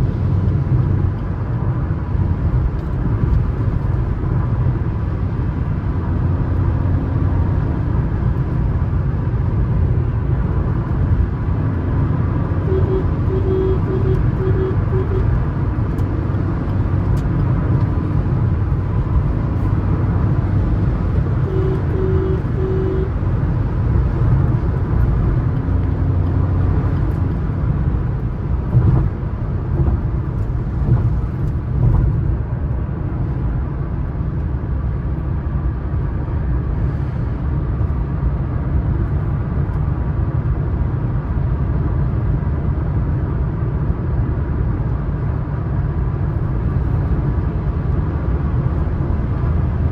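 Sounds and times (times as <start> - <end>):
car engine and road noise: 0.0 - 49.9
short tones: 12.6 - 15.3, 21.4 - 23.1.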